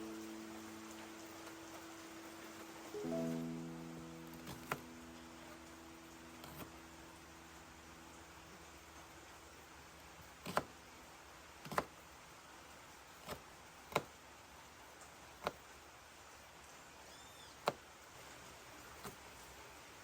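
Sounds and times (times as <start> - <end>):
faint steady hiss: 0.0 - 20.0
faint high chirp: 17.1 - 17.6.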